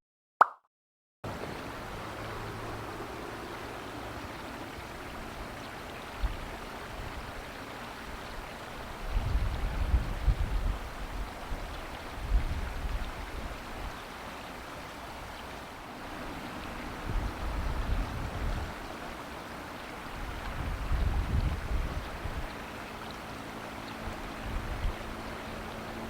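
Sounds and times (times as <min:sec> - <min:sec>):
river water rushing: 0:01.3 - 0:09.1, 0:10.6 - 0:26.0
wind buffeting microphone: 0:08.8 - 0:14.0, 0:16.6 - 0:19.0, 0:20.1 - 0:22.8, 0:23.9 - 0:26.0.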